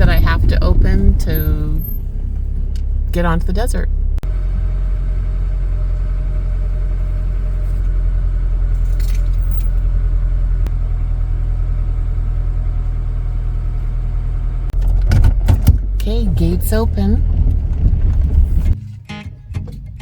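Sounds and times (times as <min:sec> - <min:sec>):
car engine idling: 0:00.0 - 0:18.8
light rattle: 0:07.1 - 0:10.6.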